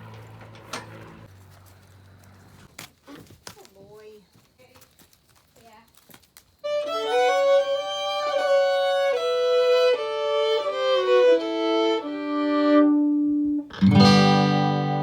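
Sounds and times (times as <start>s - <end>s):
solo fiddle melody: 6.6s - 15.0s.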